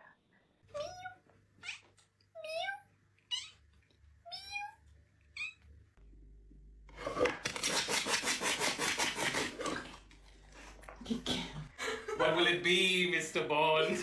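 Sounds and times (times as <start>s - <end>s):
cat meowing: 0.7s - 3.6s, 4.3s - 4.8s.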